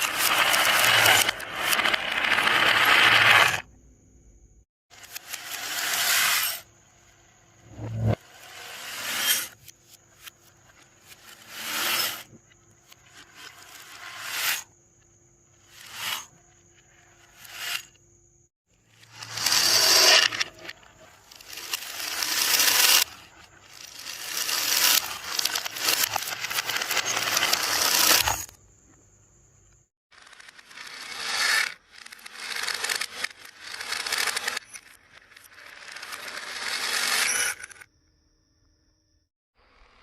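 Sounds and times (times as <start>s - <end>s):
marbles rolling down wooden run: 0.0s - 3.7s, 19.2s - 28.5s, 30.2s - 37.7s.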